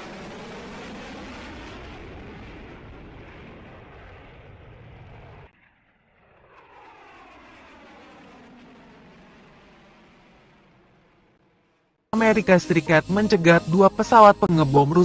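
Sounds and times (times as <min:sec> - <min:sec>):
airplane flying past: 0:00.0 - 0:10.9.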